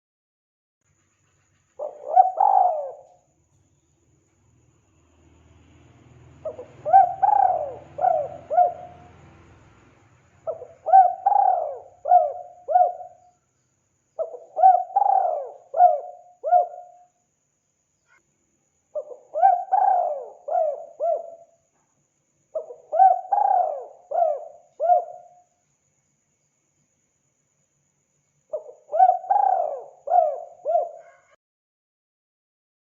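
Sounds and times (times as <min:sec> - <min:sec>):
dove cooing: 0:01.8 - 0:03.2, 0:06.4 - 0:09.3, 0:10.5 - 0:13.3, 0:14.2 - 0:17.0, 0:19.0 - 0:21.5, 0:22.6 - 0:25.4, 0:28.5 - 0:31.4.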